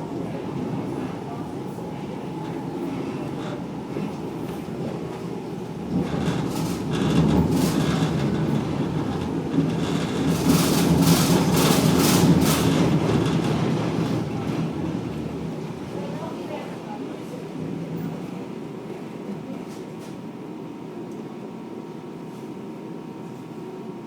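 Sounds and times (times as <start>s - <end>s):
tram rumbling on rails: 0.0s - 20.5s
wheels clacking over track joints: 5.9s - 15.2s.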